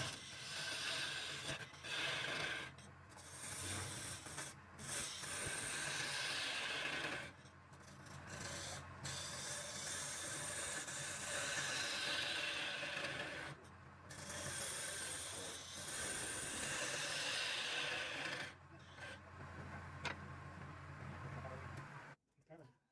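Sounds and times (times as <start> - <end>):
tool rasping against spinning wood: 0.0 - 19.2
wood lathe motor humming: 4.0 - 7.4, 8.4 - 13.6, 14.4 - 20.9.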